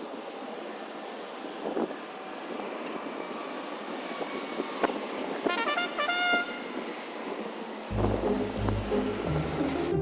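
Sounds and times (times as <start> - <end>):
distant expressway traffic hiss: 0.0 - 10.0
background music: 7.9 - 10.0.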